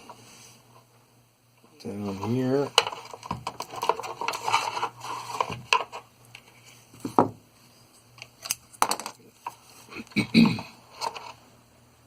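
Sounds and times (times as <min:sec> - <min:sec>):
hands handling wire and plastic parts: 0:02.1 - 0:07.2.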